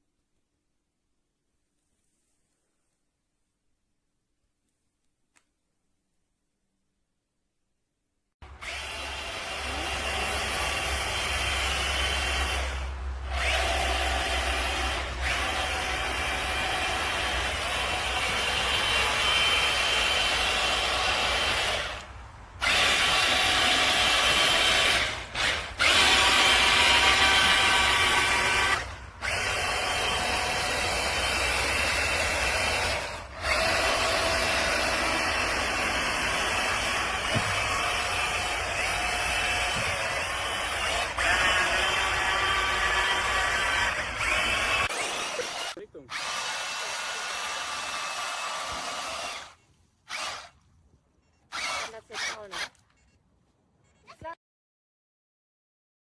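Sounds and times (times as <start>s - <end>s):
toy truck motor whining: 8.4s - 50.6s, 51.3s - 53.1s.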